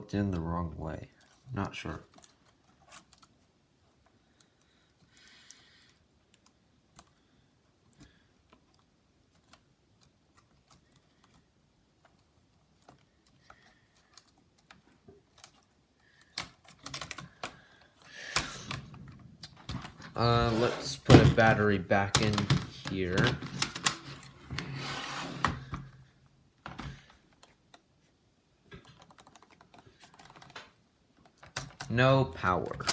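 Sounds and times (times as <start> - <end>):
light clicks of plastic parts: 0.1 - 20.1
short rustling scrape: 20.2 - 21.1, 24.0 - 25.7.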